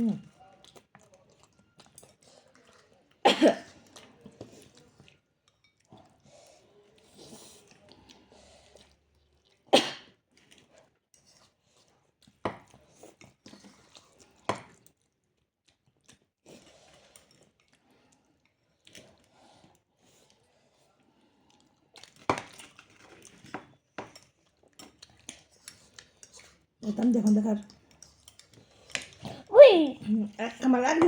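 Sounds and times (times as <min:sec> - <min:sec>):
chewing and mouth sounds: 0:00.0 - 0:20.5, 0:21.2 - 0:30.6.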